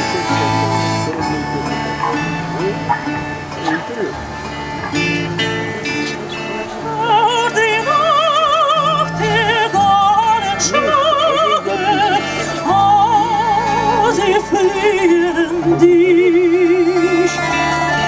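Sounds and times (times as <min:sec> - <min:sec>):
operatic singing: 0:00.0 - 0:18.0
sustained instrumental accompaniment: 0:00.0 - 0:18.0.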